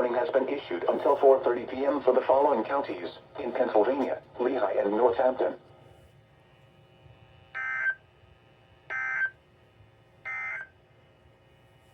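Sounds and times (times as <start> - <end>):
faint radio hiss: 0.0 - 6.1.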